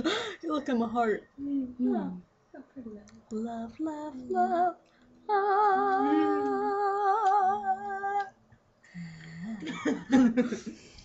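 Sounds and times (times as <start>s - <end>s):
voices: 0.5s - 8.3s.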